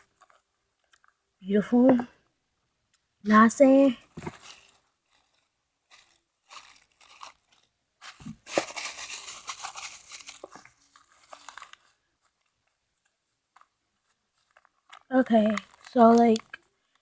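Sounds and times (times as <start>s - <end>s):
paper and tape crinkling: 4.1s - 17.0s.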